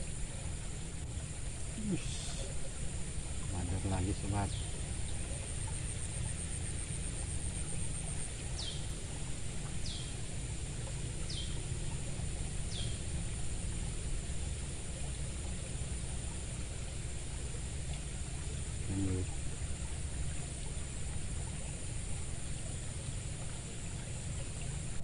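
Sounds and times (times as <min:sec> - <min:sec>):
low steady rumble: 0:00.0 - 0:25.0
high insect buzz: 0:01.4 - 0:10.2.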